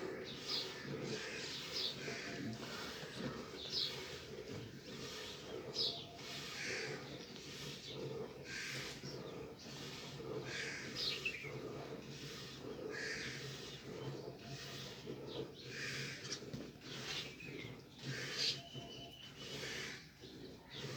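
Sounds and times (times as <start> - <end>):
milk spurting into a pail: 0.1 - 20.9.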